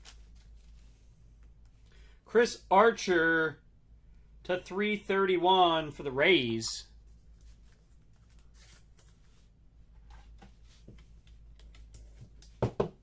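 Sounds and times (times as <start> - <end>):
trading cards rustling and clicking: 0.0 - 1.8, 7.1 - 9.4.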